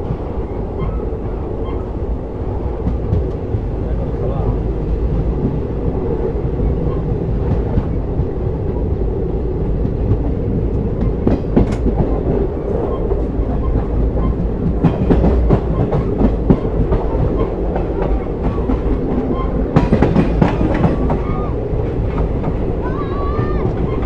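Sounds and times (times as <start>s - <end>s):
train rumble: 0.0s - 24.0s
wheels clacking over rail joints: 9.6s - 24.0s.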